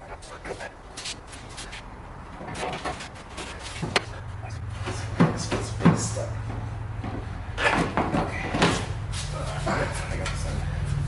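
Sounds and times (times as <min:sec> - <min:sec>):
exhaust muffler clunking and knocking: 0:02.3 - 0:11.0.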